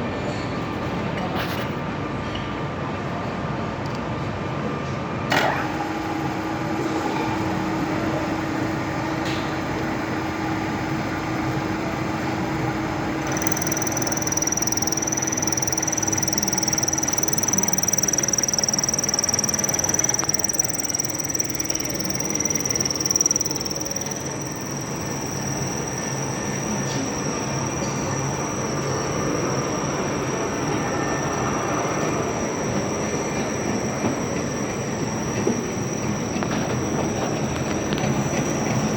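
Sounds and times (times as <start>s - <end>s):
machinery humming: 11.8s - 38.9s
high steady whine: 13.2s - 38.4s.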